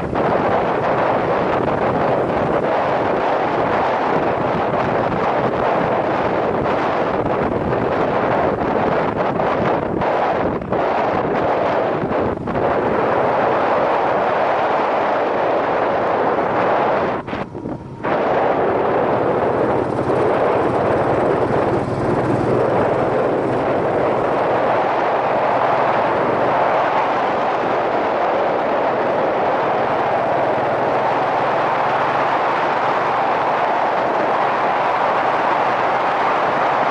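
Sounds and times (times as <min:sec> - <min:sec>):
wind rush on microphone: 0:00.0 - 0:36.9
motorcycle engine running: 0:15.5 - 0:27.0.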